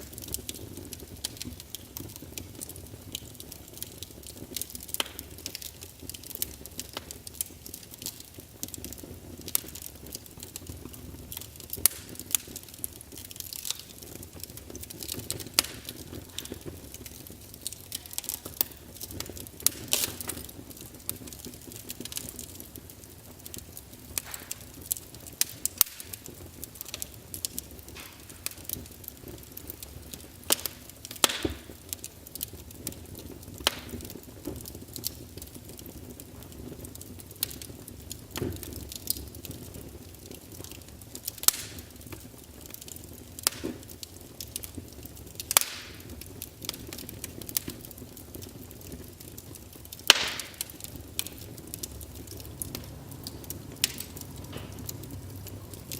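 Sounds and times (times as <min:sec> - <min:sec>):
firewood crackling and popping: 0:00.0 - 0:55.9
hiss of flames: 0:00.0 - 0:55.9.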